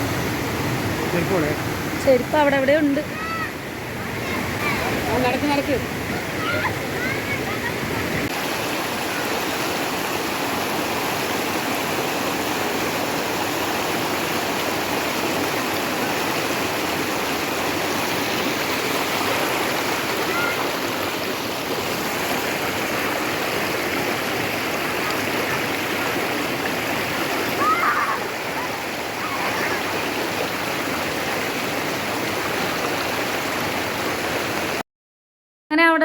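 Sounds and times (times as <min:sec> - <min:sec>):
water rushing over rocks: 0:00.0 - 0:34.8.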